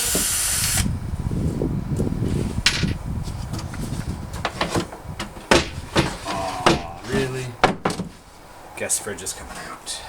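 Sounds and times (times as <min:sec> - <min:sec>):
rumbling and scraping in box: 0:01.4 - 0:08.6
knocks: 0:04.4 - 0:08.3.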